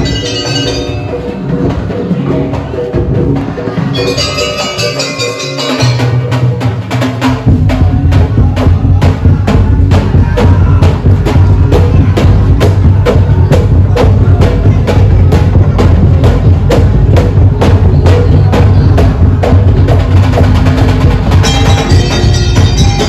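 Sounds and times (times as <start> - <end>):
percussion music with heavy bass: 0.0 - 23.0
held bass tone: 21.1 - 23.0.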